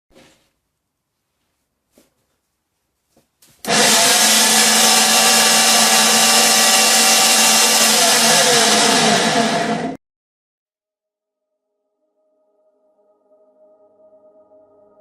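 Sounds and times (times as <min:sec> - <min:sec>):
electric meat grinder running: 0:03.6 - 0:10.0.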